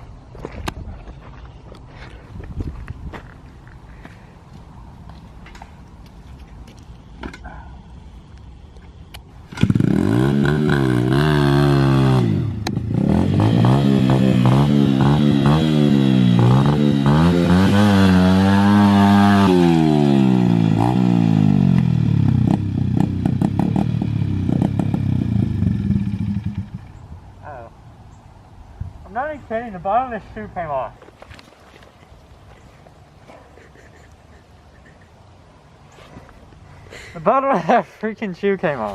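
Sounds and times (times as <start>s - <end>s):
dirt bike engine revving: 9.4s - 27.0s.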